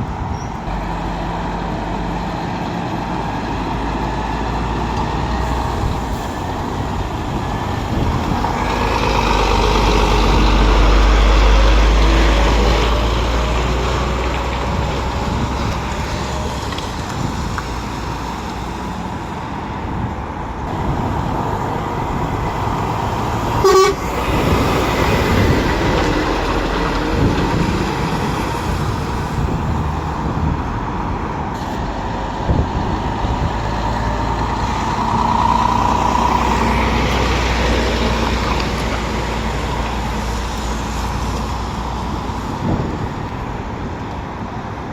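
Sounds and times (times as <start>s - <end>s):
lorry engines rumbling: 0.0s - 44.9s
horn toot: 23.6s - 24.4s.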